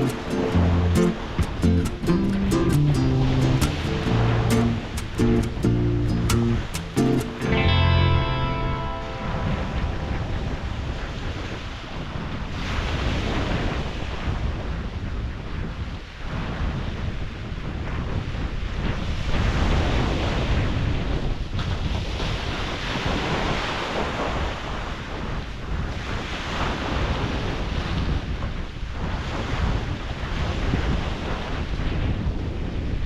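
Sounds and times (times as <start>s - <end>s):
sea waves washing onto beach: 0.0s - 7.6s, 8.7s - 18.3s
wind buffeting microphone: 0.0s - 33.0s.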